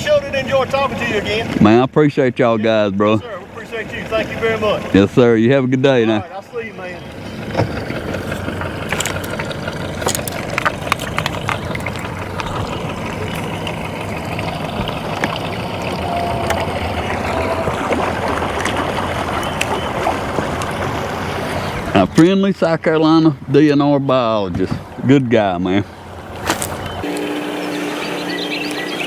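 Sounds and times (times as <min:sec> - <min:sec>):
boat motor running: 0:00.0 - 0:01.8, 0:03.2 - 0:05.3, 0:06.3 - 0:22.2, 0:26.0 - 0:29.0
water lapping against hull: 0:00.0 - 0:01.8, 0:03.2 - 0:05.3, 0:06.2 - 0:29.0.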